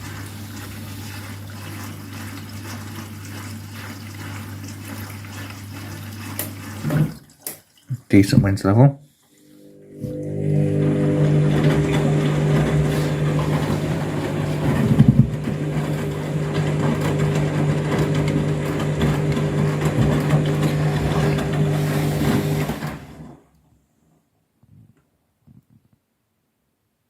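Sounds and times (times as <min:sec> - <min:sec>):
washing machine motor hum: 0:00.0 - 0:07.4, 0:09.3 - 0:23.4
water and laundry sloshing: 0:00.0 - 0:23.4.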